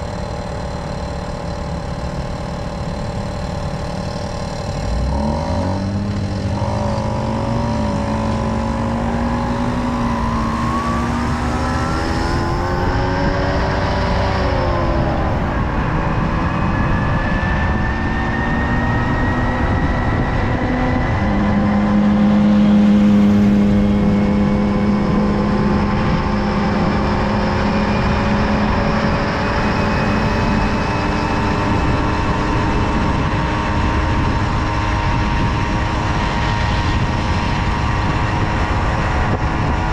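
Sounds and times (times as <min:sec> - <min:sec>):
moped two-stroke engine running: 0:00.0 - 0:15.5.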